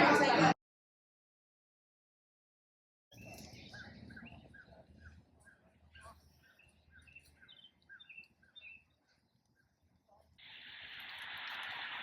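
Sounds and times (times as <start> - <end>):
faint bird chirps: 3.1 - 10.2.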